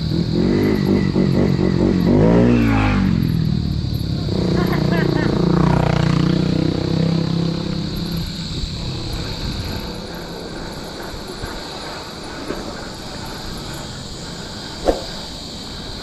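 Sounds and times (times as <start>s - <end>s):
bike tyre noise on trail: 0.0s - 16.0s
wind rumble on microphone: 0.0s - 16.0s
high hiss: 3.4s - 16.0s.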